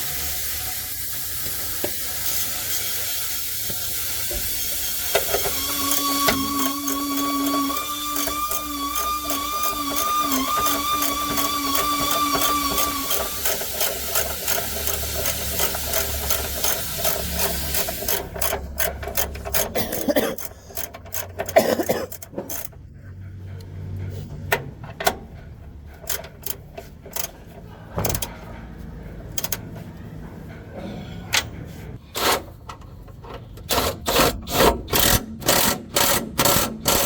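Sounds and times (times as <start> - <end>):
steady mechanical whine: 0.2 - 19.7
tool clicking on metal: 1.4 - 22.8, 25.9 - 28.4, 29.2 - 29.8, 33.6 - 37.0.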